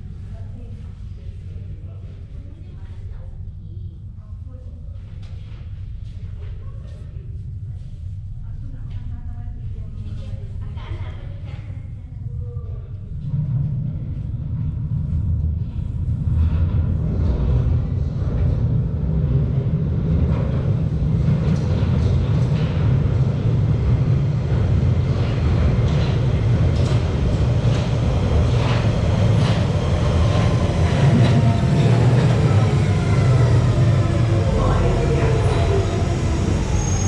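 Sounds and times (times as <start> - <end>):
train rumble in tunnel: 0.0 - 37.0
train wheel clacks: 20.2 - 36.4.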